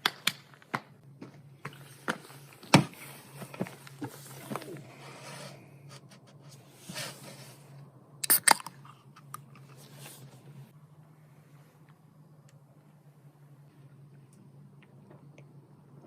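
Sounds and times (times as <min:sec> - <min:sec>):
scraping and handling noises: 0:00.0 - 0:10.7
faint low hum: 0:00.0 - 0:16.0.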